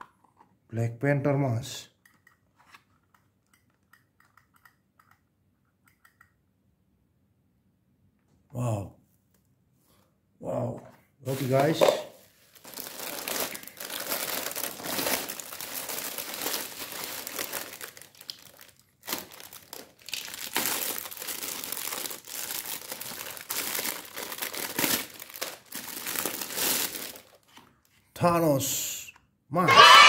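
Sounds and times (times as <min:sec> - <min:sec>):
plastic bags and bubble wrap crinkling: 0:11.3 - 0:27.9.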